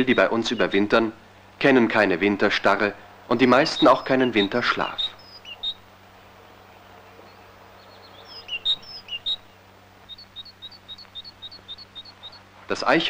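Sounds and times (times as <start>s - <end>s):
small bird chirping: 0.0s - 1.0s, 3.3s - 5.9s, 7.0s - 12.5s
faint low hum: 0.0s - 13.0s.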